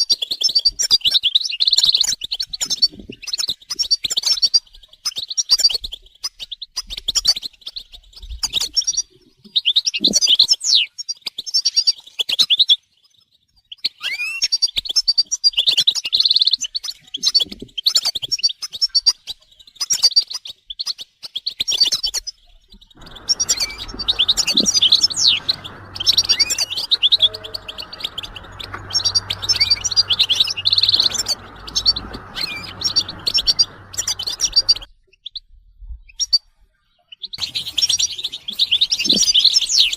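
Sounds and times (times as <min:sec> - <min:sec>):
finches twittering and singing: 0:23.0 - 0:34.9
low hiss and hum: 0:23.0 - 0:34.9.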